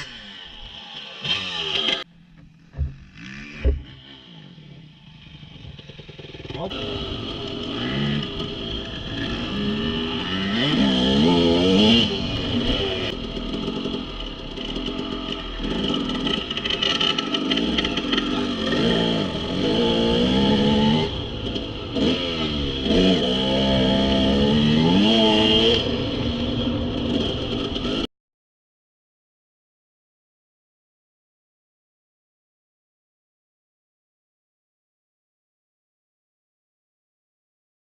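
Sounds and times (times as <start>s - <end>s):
dirt bike engine revving: 0.0s - 28.1s.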